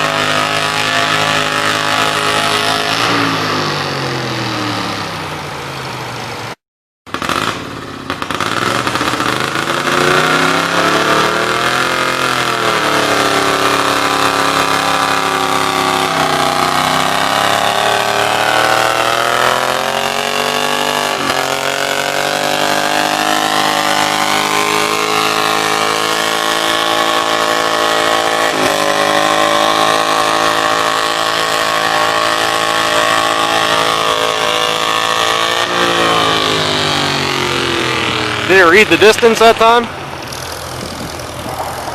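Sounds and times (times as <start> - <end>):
tractor engine running hard: 0.0 - 41.9.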